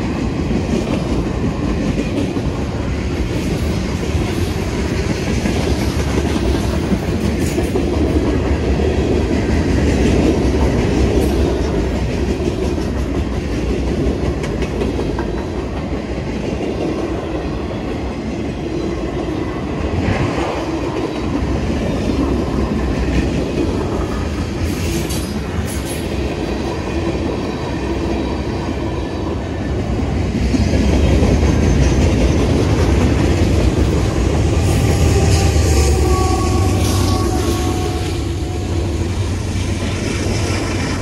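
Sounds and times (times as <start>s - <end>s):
diesel locomotive rumble: 19.6s - 41.0s.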